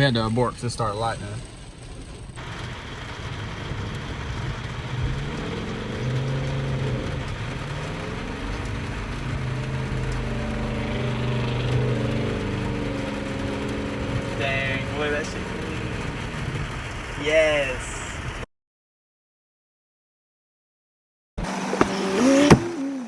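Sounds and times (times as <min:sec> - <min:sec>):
steady hiss: 0:02.4 - 0:18.4
truck engine revving: 0:02.4 - 0:18.4.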